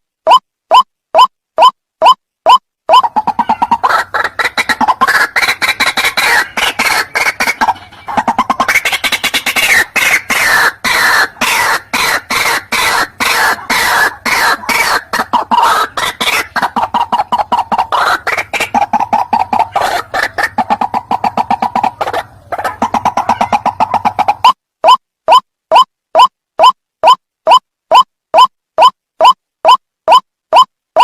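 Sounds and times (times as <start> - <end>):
waterhen calling harsh notes: 0.3 - 25.0.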